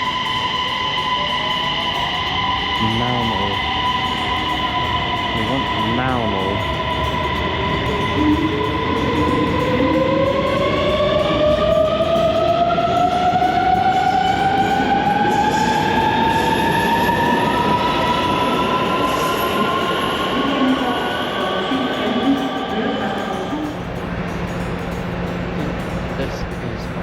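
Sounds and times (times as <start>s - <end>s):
electric train motor whine: 0.0s - 26.8s
train running rumble: 0.0s - 27.0s.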